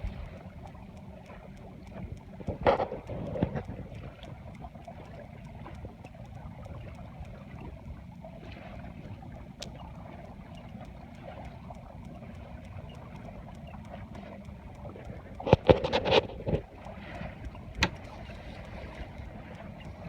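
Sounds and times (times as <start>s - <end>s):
water rushing along hull: 0.0s - 20.0s
wind on microphone: 1.9s - 4.4s.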